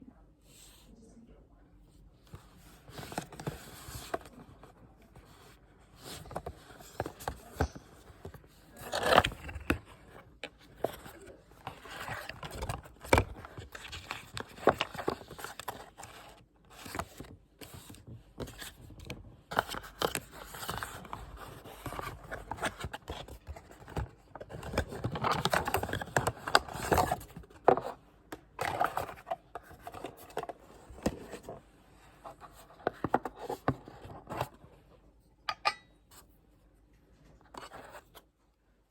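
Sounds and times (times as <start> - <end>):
packaging scraping and rustling: 5.2 - 18.8, 19.5 - 28.0, 28.6 - 34.6.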